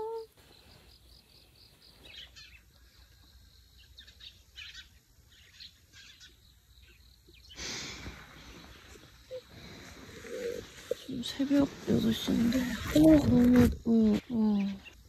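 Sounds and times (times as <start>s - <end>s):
small birds chirping: 0.0s - 15.0s
rustling noise: 8.0s - 14.4s.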